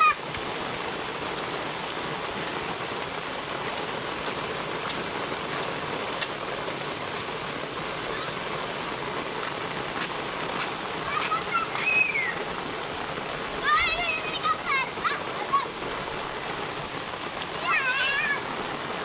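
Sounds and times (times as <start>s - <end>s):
heavy rain pouring: 0.0s - 19.0s
sharp water drips: 0.0s - 19.0s.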